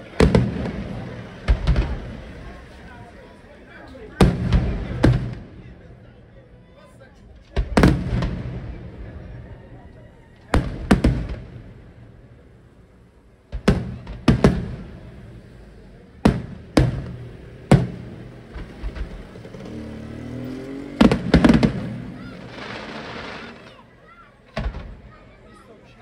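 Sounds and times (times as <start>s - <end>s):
firework shells booming: 0.0s - 2.8s, 4.1s - 5.7s, 7.5s - 9.3s, 10.5s - 12.4s, 13.3s - 19.8s, 21.0s - 23.9s, 24.5s - 25.1s
firework crackling: 0.0s - 5.7s, 10.6s - 25.1s.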